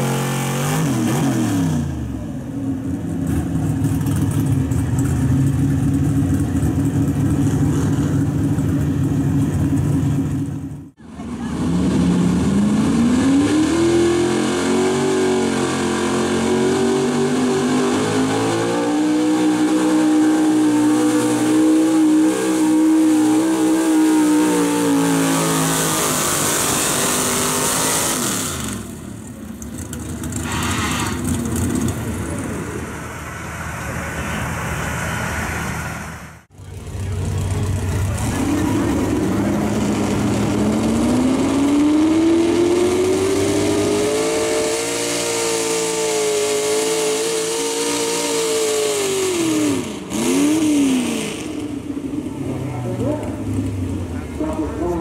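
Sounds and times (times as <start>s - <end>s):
truck engine revving: 0.0s - 55.0s.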